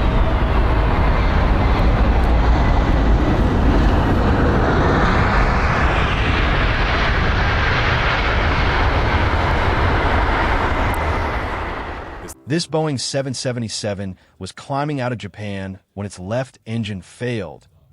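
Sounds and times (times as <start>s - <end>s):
jet airliner taking off: 0.0s - 14.3s.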